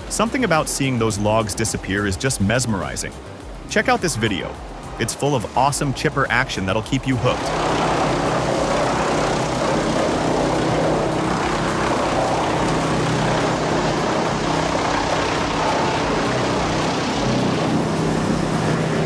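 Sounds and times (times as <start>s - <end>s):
wood chipper running: 7.5s - 19.0s.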